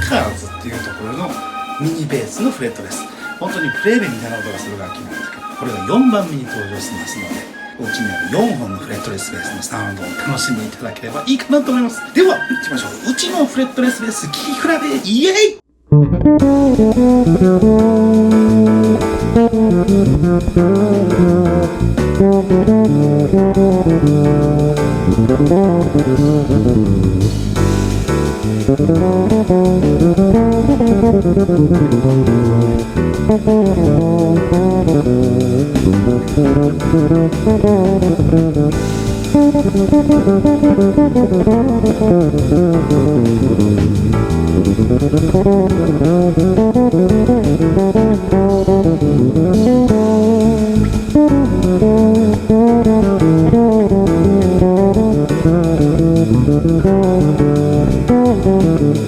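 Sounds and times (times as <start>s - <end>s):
fretless bass guitar sliding notes: 0.0s - 1.9s, 15.7s - 59.0s.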